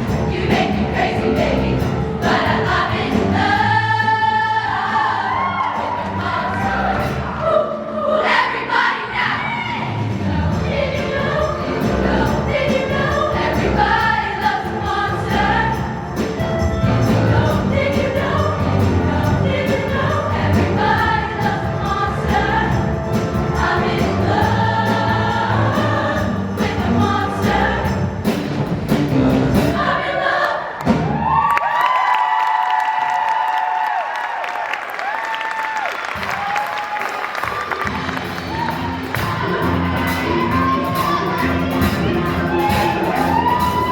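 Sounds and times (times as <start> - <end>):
drums keeping a steady beat: 0.0 - 4.8, 10.0 - 30.1, 37.5 - 43.9
choir singing in harmony: 0.0 - 31.0, 37.8 - 43.9.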